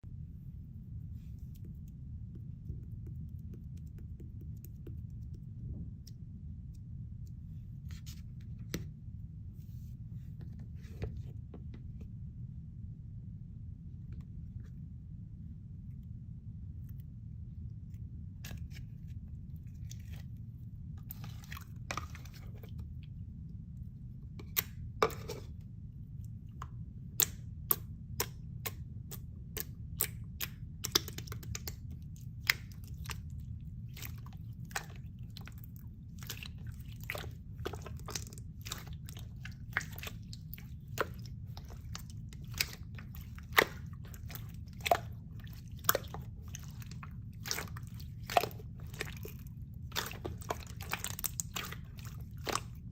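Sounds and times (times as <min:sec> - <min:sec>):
low steady hum: 0:00.0 - 0:52.9.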